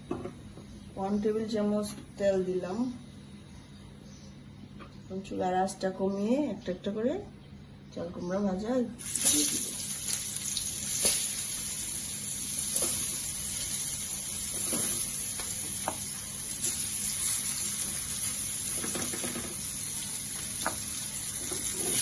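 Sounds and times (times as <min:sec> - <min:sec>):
slices sizzling in a pan: 0:09.0 - 0:22.0.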